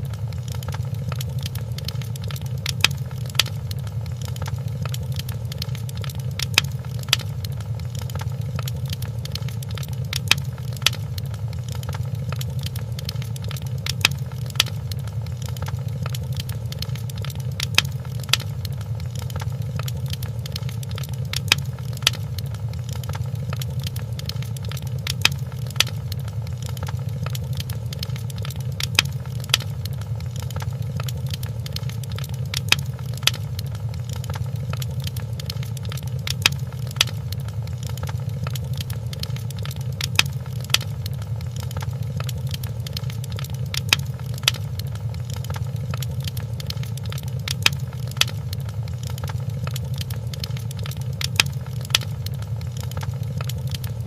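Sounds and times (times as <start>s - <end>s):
low fire rumble: 0.0s - 54.0s
wood fire crackling and popping: 0.0s - 54.0s.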